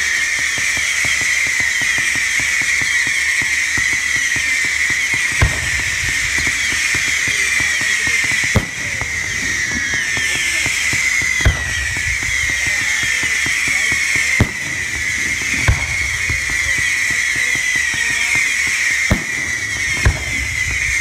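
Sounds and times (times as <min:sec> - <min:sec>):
firework bangs: 0:00.0 - 0:21.0
fireworks fizzing crackle: 0:00.0 - 0:21.0.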